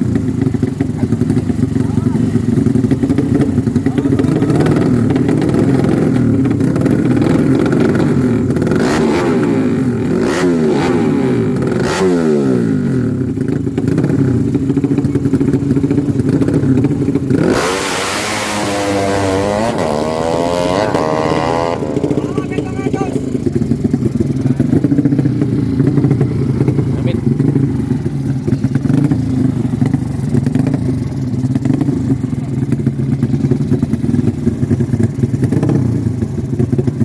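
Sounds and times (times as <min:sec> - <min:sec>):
racing motorcycle engines revving: 0:00.0 - 0:37.0.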